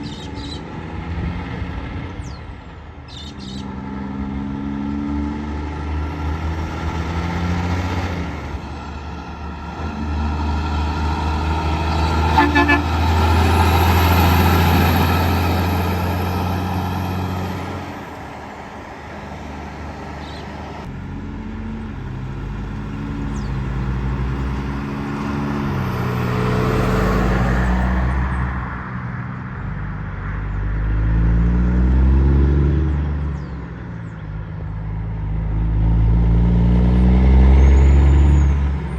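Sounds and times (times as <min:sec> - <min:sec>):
trucks passing: 0:00.0 - 0:38.9
truck horn blast: 0:12.2 - 0:14.2.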